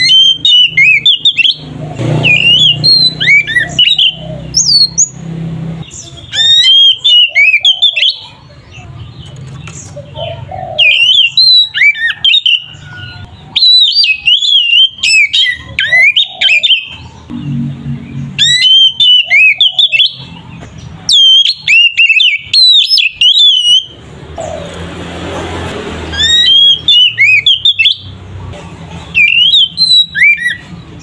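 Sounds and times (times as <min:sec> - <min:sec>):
bird singing whistled phrases: 0:00.0 - 0:05.2, 0:05.8 - 0:08.4, 0:10.8 - 0:17.0, 0:18.4 - 0:20.3, 0:21.1 - 0:24.0, 0:26.2 - 0:28.2, 0:29.2 - 0:30.8.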